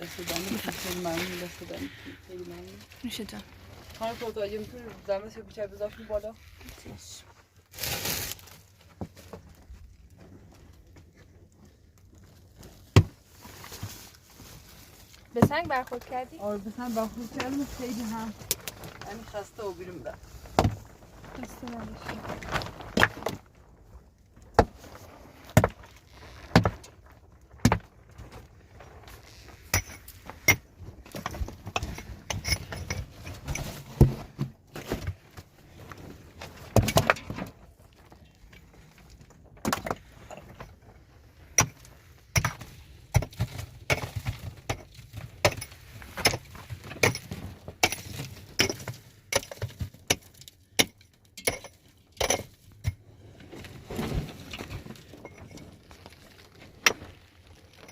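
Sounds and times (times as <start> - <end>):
hard objects knocking and clinking: 41.6 - 53.0.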